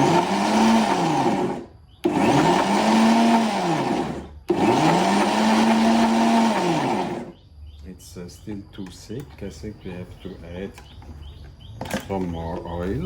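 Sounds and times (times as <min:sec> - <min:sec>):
blender motor pulsing: 0:00.0 - 0:07.4.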